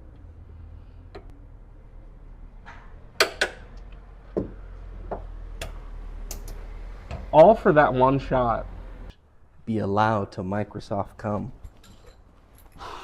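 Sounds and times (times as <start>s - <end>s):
steady low hum: 0.0s - 11.7s
clicks and knocks of metal tools: 11.6s - 12.8s.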